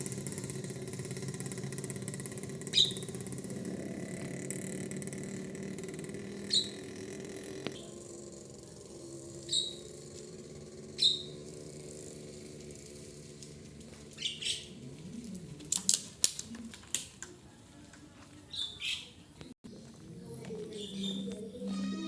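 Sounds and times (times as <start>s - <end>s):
bird chirping: 2.7s - 3.1s, 9.4s - 9.9s, 10.9s - 11.4s, 14.2s - 14.8s, 18.5s - 19.5s, 20.6s - 22.0s.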